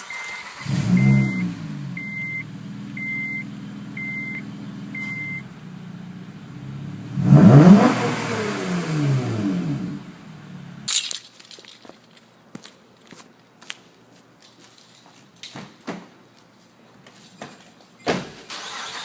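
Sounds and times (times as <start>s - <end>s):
warning chime beeping: 0.0s - 5.5s
car engine starting and idling: 0.0s - 10.9s, 18.5s - 19.0s
car engine revving: 0.4s - 10.9s.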